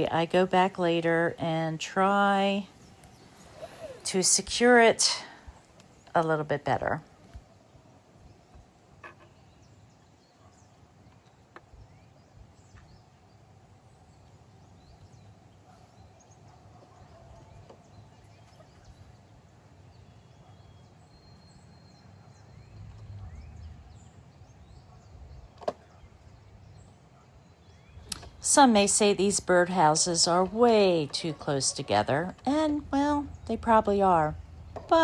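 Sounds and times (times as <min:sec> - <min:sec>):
distant bird chirps: 0:00.0 - 0:35.0
low wind rumble: 0:22.2 - 0:27.0, 0:27.7 - 0:35.0.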